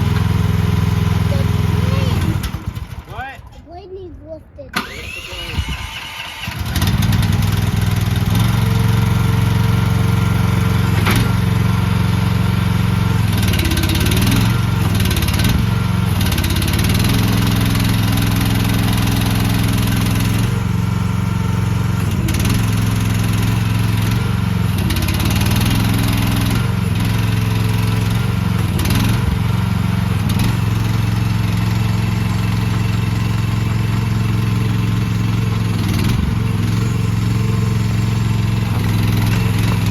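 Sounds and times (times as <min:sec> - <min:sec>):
excavator engine running: 0:00.0 - 0:03.9, 0:04.7 - 0:39.9.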